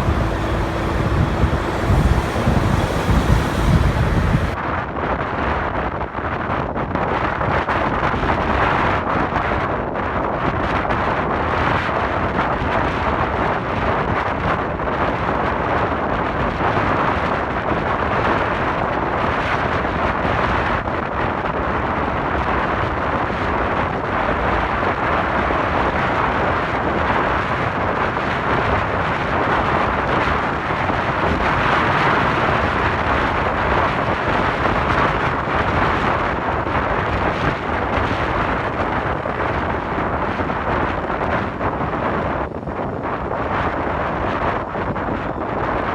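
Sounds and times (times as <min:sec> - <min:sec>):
motorcycle road noise: 0:00.0 - 0:04.6, 0:23.9 - 0:41.6
wind rushing over microphone: 0:00.0 - 0:04.6, 0:21.2 - 0:45.9.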